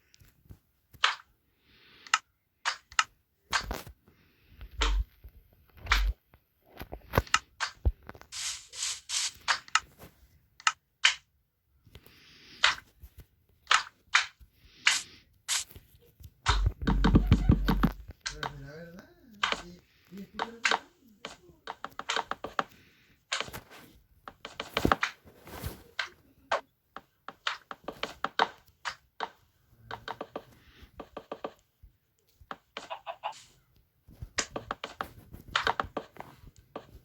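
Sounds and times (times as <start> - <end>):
hard objects knocking and clicking: 16.5 - 18.6.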